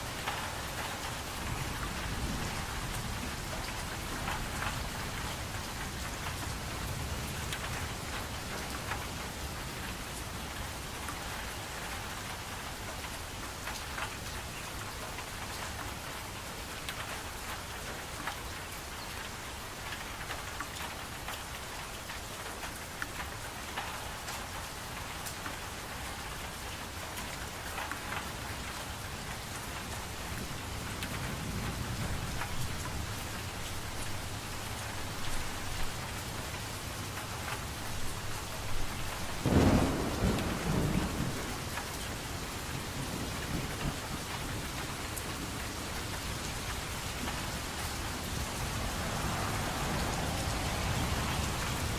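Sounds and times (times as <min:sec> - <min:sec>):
rain falling: 0:00.0 - 0:51.9
thunder rumbling: 0:39.0 - 0:45.6, 0:48.3 - 0:51.9.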